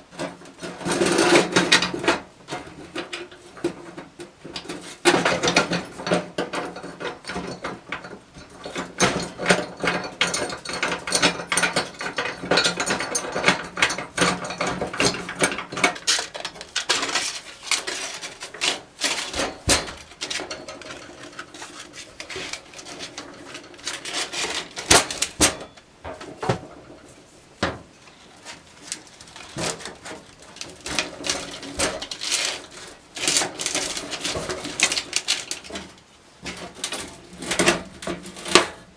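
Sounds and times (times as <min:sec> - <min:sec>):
metal clicking and ratcheting: 0:28.8 - 0:36.0.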